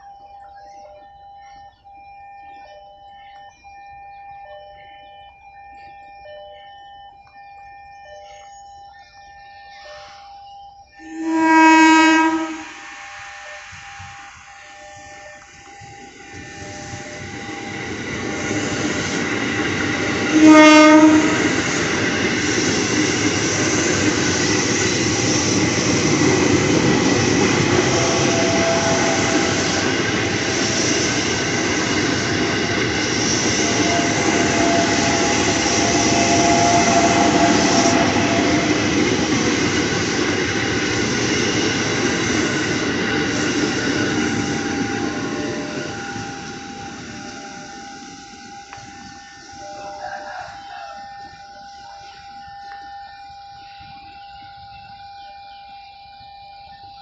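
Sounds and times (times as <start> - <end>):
train rumble and rail noise: 9.7 - 55.2
train horn blast: 11.0 - 18.5, 20.2 - 22.0, 27.3 - 31.2, 32.9 - 39.5, 43.4 - 52.3.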